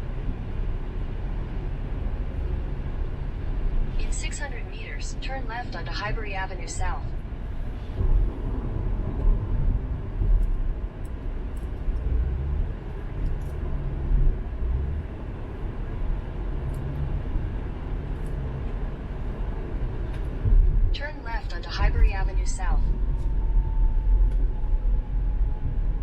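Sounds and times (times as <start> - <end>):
car tyre and engine rumble: 0.0 - 6.1, 6.7 - 26.0.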